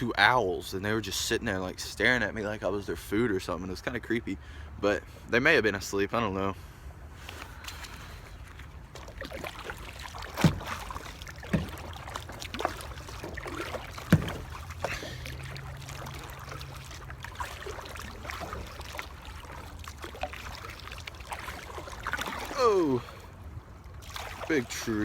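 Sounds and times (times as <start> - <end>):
paddle water sloshing and dripping: 6.6 - 25.0
sharp knocks: 10.4 - 13.0, 13.8 - 14.8.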